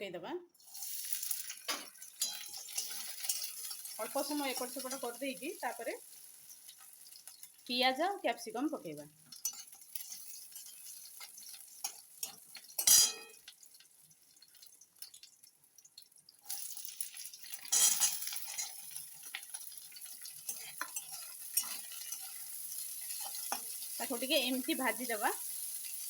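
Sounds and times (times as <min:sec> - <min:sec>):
spoon scraping pan: 0:00.6 - 0:05.2, 0:09.3 - 0:13.5, 0:16.5 - 0:26.0
vegetables sizzling in hot oil: 0:00.6 - 0:26.0.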